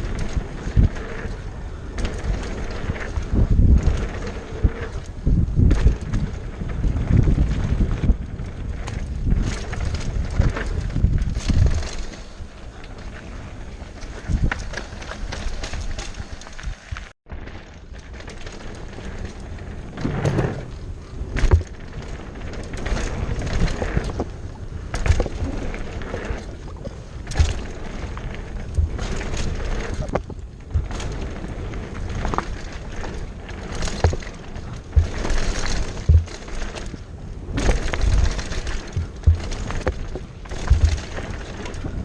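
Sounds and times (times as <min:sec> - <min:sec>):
wind on microphone: 0:00.0 - 0:12.5
bike tyres rolling on dirt: 0:00.0 - 0:42.0
knocks and thumps over bumps: 0:19.8 - 0:22.0, 0:24.9 - 0:31.4, 0:32.0 - 0:42.0.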